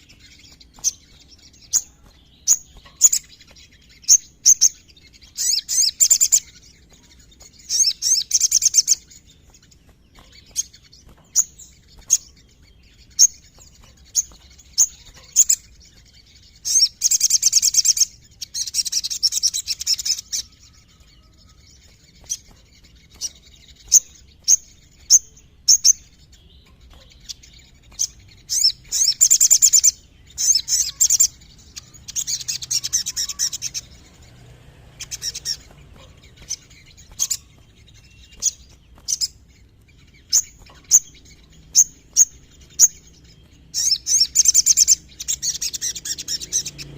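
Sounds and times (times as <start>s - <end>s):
bird trilling: 0.0s - 6.6s, 22.3s - 34.3s, 35.0s - 39.4s
sharp high bird chirps: 0.0s - 46.9s.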